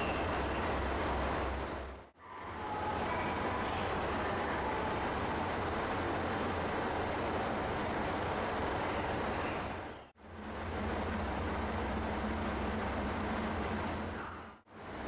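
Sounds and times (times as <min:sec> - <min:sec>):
rail vehicle running: 0:00.0 - 0:15.0
low hum: 0:10.2 - 0:14.6.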